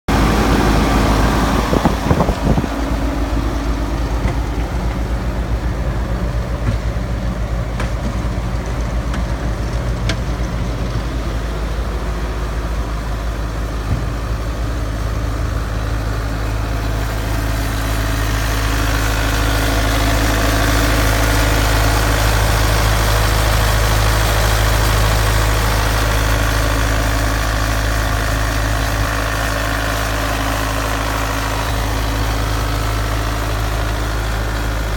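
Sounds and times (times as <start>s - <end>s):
diesel engine idling and revving: 0.0s - 34.9s.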